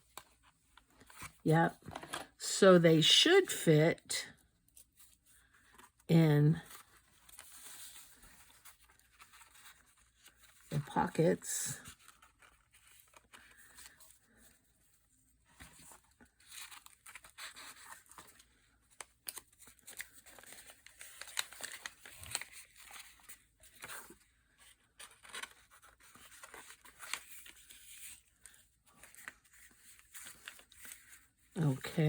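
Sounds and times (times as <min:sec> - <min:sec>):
paper rustling and scraping: 0:06.6 - 0:11.2, 0:11.8 - 0:32.0.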